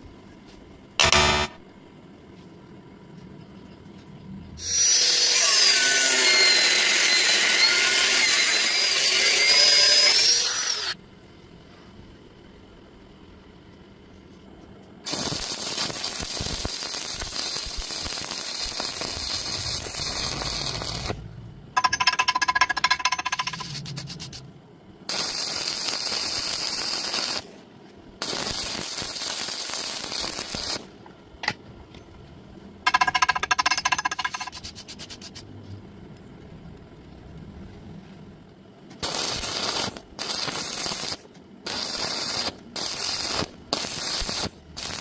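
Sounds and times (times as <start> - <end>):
rapid metallic striking: 1.0 - 1.6
welding arc crackling and hissing: 4.6 - 11.0, 15.0 - 21.2, 25.1 - 27.6, 28.2 - 31.0, 39.0 - 45.0.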